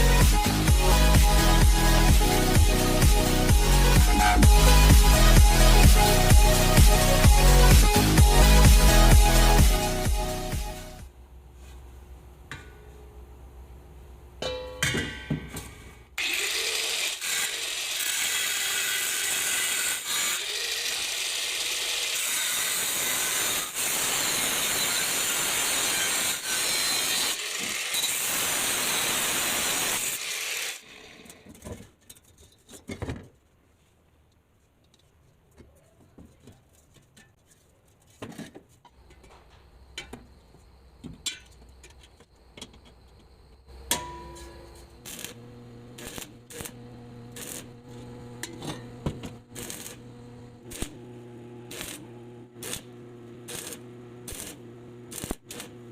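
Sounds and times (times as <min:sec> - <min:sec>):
power tool running: 0:16.2 - 0:31.3, 0:45.0 - 0:55.9.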